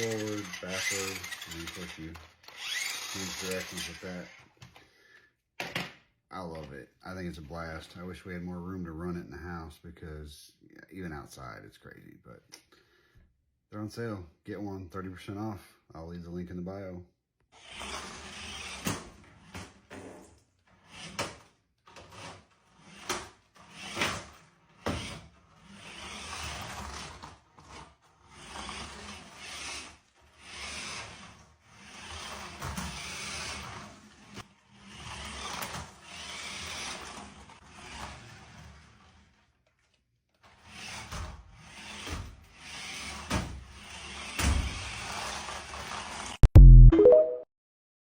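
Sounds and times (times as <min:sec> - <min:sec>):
rc truck motor whirring: 0:00.0 - 0:04.4, 0:17.5 - 0:19.9, 0:20.7 - 0:46.4.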